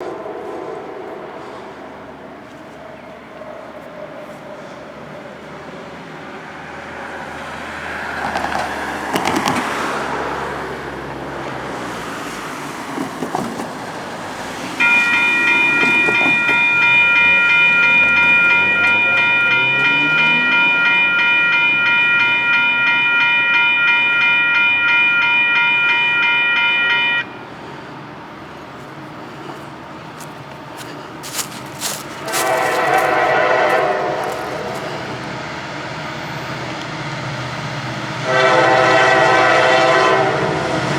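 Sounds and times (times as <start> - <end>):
train rumble: 0.0 - 40.9
train air horn: 31.6 - 35.2, 38.2 - 40.9.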